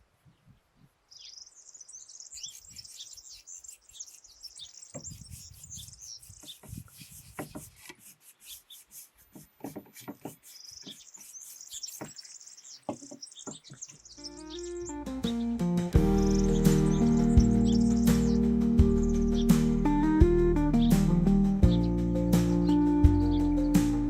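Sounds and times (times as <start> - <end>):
small birds chirping: 0.0 - 24.0
rubbing strokes on wood: 2.4 - 14.0.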